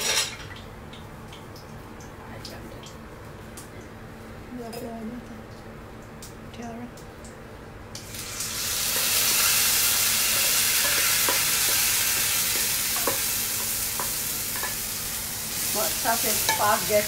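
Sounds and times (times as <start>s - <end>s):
paste sizzling in hot oil: 8.1s - 17.0s.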